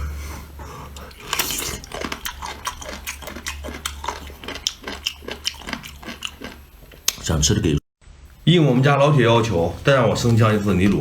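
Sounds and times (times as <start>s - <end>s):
wet eating clicks and crackles: 1.0s - 7.3s.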